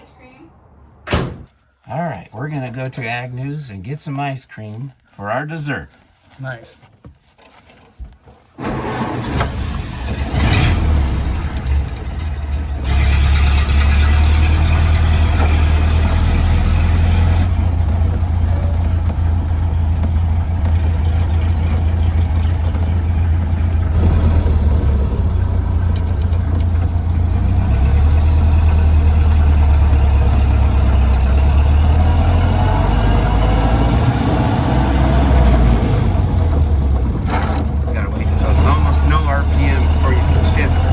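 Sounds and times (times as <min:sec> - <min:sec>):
road noise: 0:00.0 - 0:06.8, 0:08.6 - 0:40.9
truck engine droning: 0:08.6 - 0:40.9.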